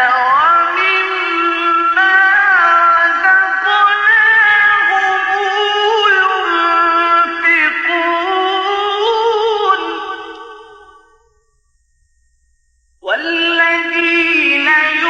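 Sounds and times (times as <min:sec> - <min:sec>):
man chanting recitation: 0:00.0 - 0:10.8, 0:13.0 - 0:15.0.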